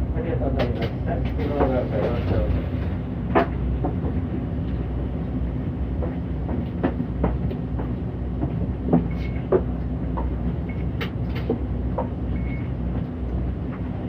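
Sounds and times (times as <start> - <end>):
bus engine and road rumble: 0.0 - 14.0
body rattles and knocks: 5.8 - 12.2.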